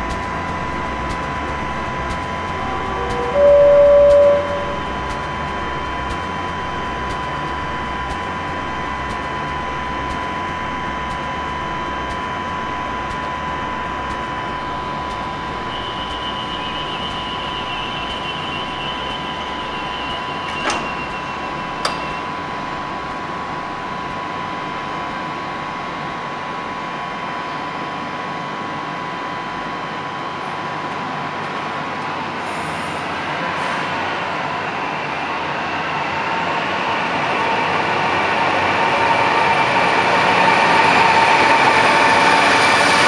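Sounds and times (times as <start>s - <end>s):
higher wavering tone: 0.0s - 25.0s
train equipment hum and whine: 0.0s - 43.0s.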